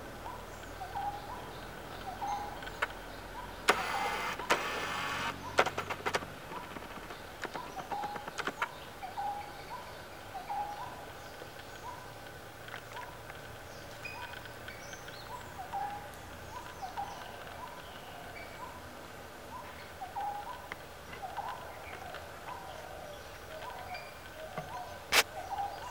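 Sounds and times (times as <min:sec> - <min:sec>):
sharp clicks: 0:02.6 - 0:03.0, 0:03.7 - 0:08.8.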